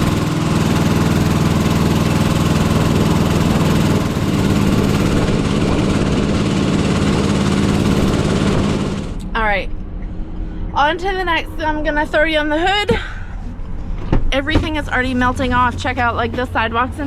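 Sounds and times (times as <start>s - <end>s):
engine running loudly: 0.0s - 12.8s.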